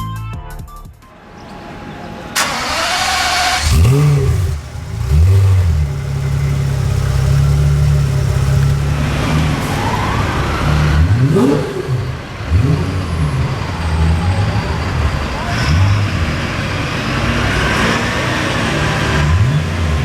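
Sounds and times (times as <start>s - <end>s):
car engine revving: 1.3s - 20.0s.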